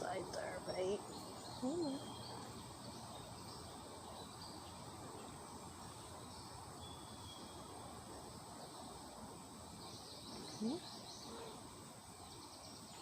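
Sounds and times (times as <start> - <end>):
low steady hiss: 0.0 - 13.0
faint high chirps: 1.2 - 5.3.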